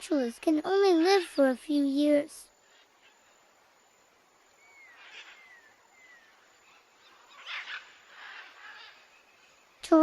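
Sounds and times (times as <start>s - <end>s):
bird whistled calls: 4.6s - 6.4s.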